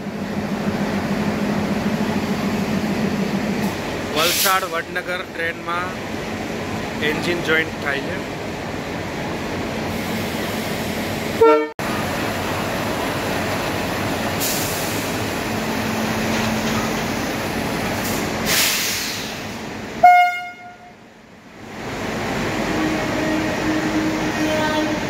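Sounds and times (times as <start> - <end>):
locomotive rumbling: 0.0 - 25.0
hiss: 4.2 - 4.7, 14.4 - 15.2, 17.9 - 19.6
train horn toots: 11.4 - 11.7, 20.0 - 21.0, 22.8 - 25.0.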